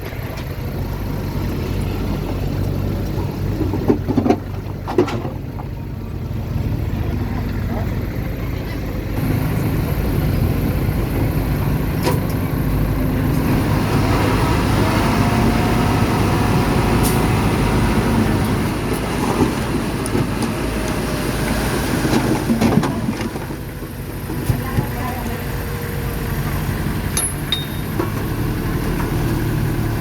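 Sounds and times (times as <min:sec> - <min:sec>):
heavy machinery diesel engine: 0:00.0 - 0:30.0
metallic clanks and knocks: 0:27.2 - 0:28.3.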